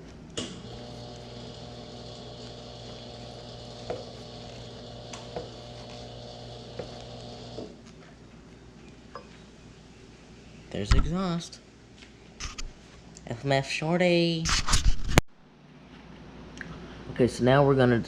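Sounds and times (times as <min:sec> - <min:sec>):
machine hum with high whine: 0:00.0 - 0:12.8.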